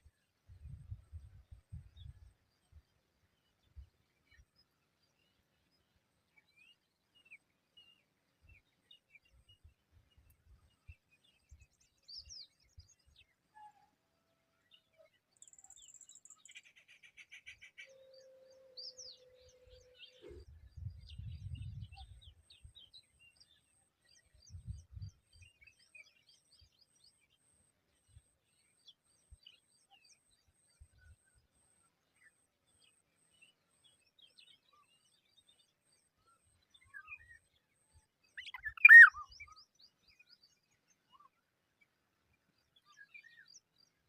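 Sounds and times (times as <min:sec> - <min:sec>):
bird chirps and tweets: 0:00.0 - 0:13.9, 0:14.6 - 0:44.0.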